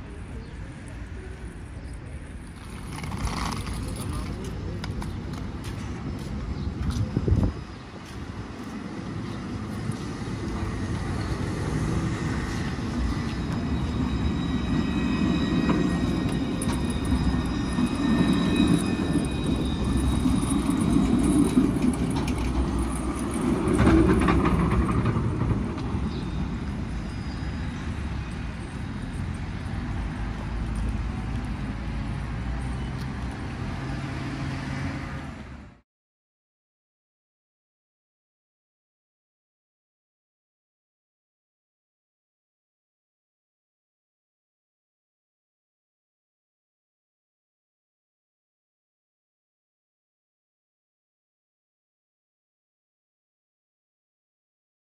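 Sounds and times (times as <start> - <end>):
tram rumbling on rails: 0.0 - 35.8.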